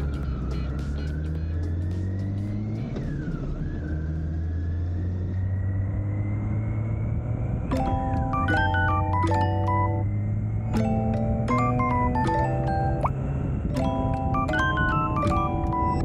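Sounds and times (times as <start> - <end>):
motorcycle engine droning: 0.0 - 15.8
piano-like music notes: 7.7 - 16.0.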